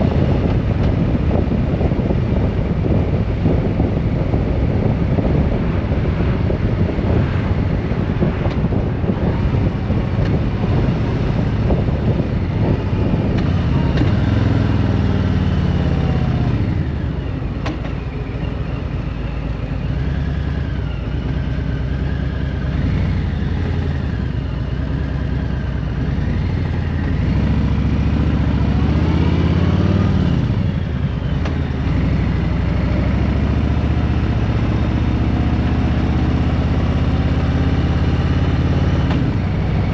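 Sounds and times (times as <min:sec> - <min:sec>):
wind noise: 0:00.0 - 0:19.2
motorcycle engine: 0:00.0 - 0:39.9.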